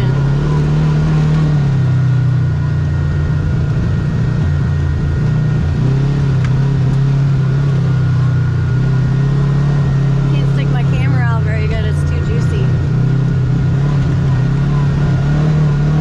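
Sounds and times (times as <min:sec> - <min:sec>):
vehicle engine running: 0:00.0 - 0:16.0
thin steady whine: 0:07.2 - 0:15.2.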